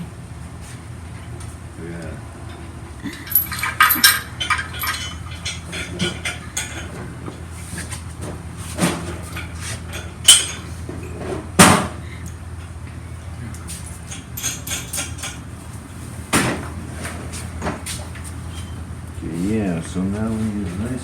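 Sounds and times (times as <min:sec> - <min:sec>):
metal tools clinking: 0:02.5 - 0:07.1, 0:09.0 - 0:11.3, 0:13.7 - 0:15.4.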